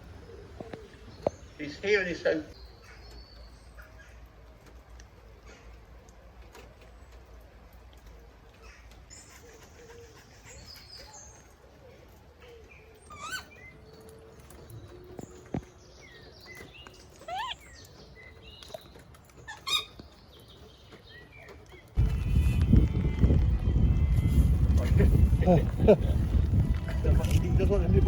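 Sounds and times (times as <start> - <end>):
bird chirping calls: 8.1 - 22.0.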